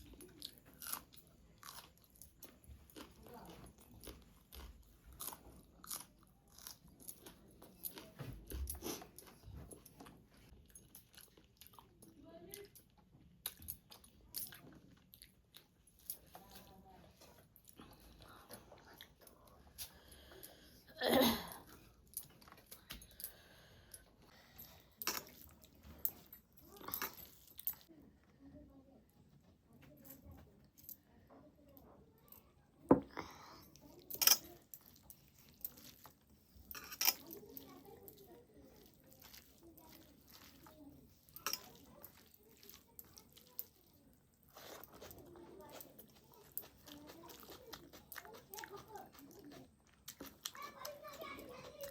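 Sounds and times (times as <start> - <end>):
person chewing crunchy food: 0.0 - 20.7, 33.2 - 51.9
mouth eating noises: 33.2 - 51.9.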